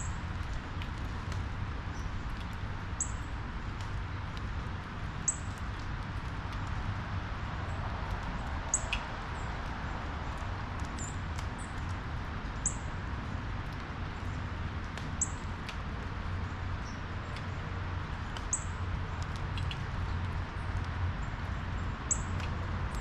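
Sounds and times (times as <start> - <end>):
small birds chirping: 18.2 - 23.0.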